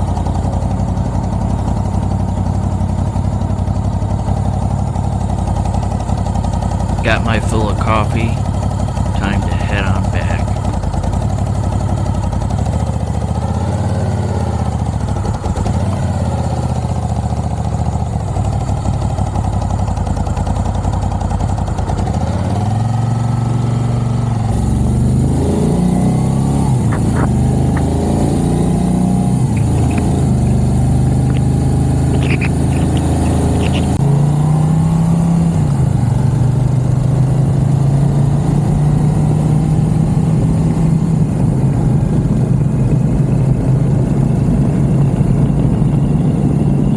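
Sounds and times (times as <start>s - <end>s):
motorcycle engine accelerating: 10.1s - 46.9s.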